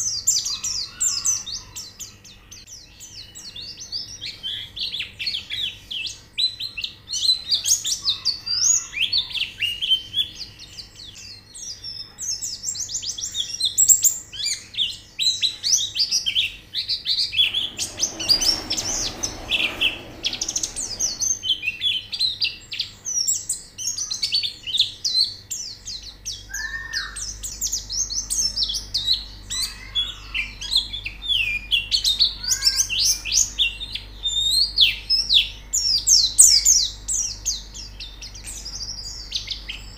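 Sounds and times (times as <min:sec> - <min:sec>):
birds twittering chirps and trills: 0:24.0 - 0:39.9.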